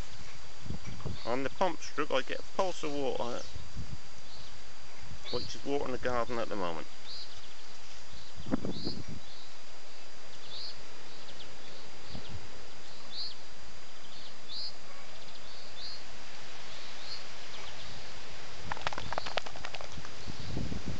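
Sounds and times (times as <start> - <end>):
steady hiss: 0.0 - 20.9
small bird chirping: 6.9 - 13.4, 14.0 - 16.0, 18.7 - 20.7.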